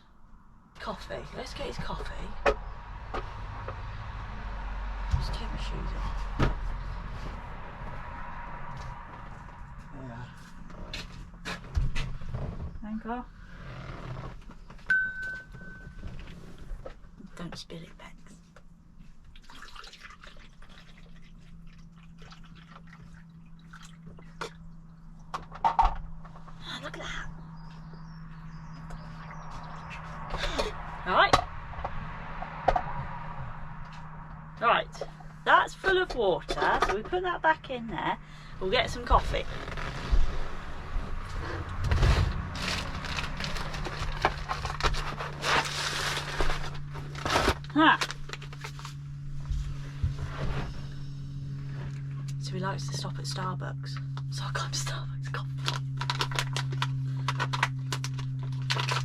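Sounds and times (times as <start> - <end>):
low steady hum: 0.0 - 59.0
water dripping and splashing: 19.3 - 25.3.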